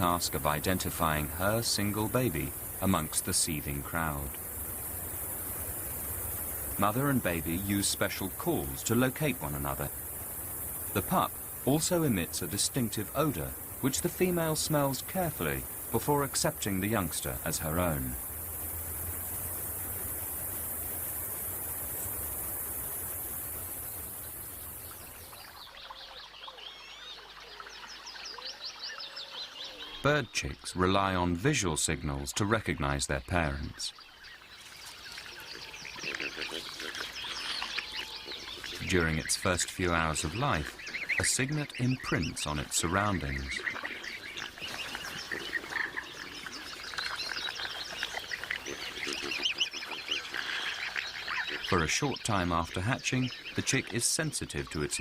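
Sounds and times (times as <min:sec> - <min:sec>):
steady noisy hiss: 0:00.0 - 0:25.7, 0:28.0 - 0:55.0
cygnets peeping: 0:32.8 - 0:55.0
young animals chirping: 0:33.4 - 0:55.0.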